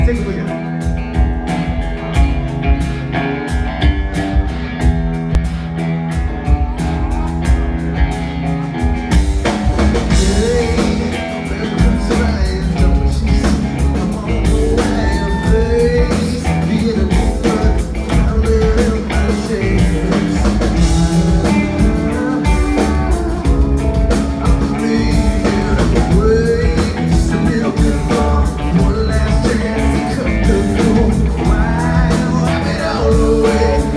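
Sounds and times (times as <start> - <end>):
rock band playing: 0.0 - 33.9
person singing: 9.8 - 33.9.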